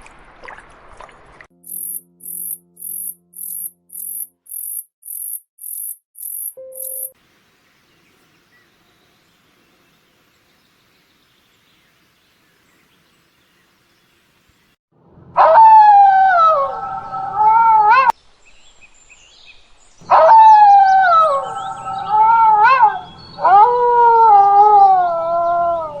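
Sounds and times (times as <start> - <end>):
animal howling: 15.4 - 18.2, 20.1 - 26.0.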